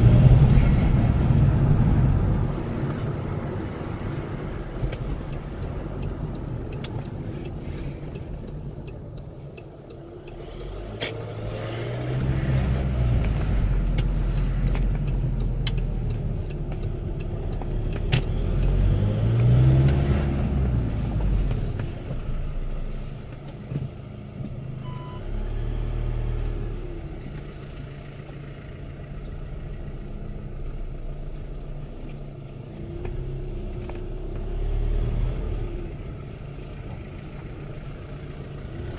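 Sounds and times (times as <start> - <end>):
diesel engine revving: 0.0 - 9.4, 10.0 - 23.3, 24.8 - 38.9
short beep: 24.8 - 25.2.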